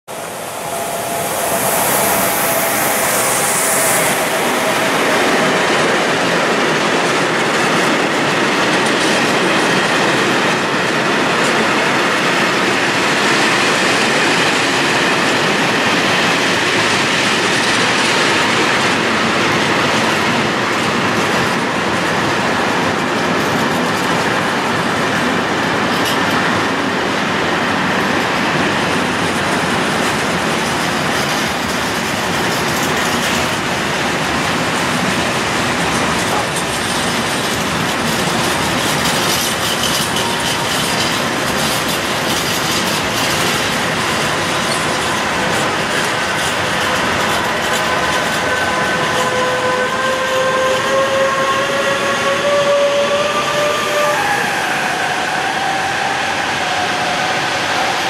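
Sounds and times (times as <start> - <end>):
high wheel squeal: 0.1 - 7.0, 37.5 - 43.6, 47.7 - 57.6
train wheels rumbling and clattering: 0.1 - 58.0.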